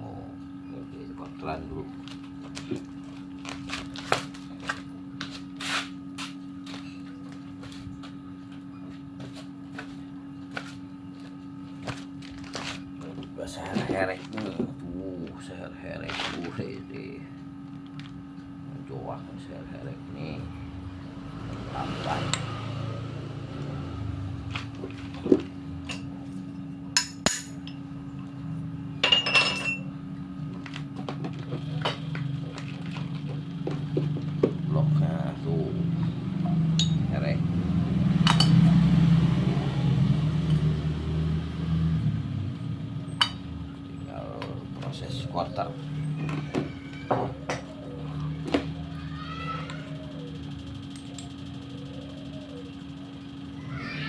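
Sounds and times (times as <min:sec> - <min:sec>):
electric machine hum: 0:00.0 - 0:54.0
metal parts clinking: 0:29.0 - 0:29.9.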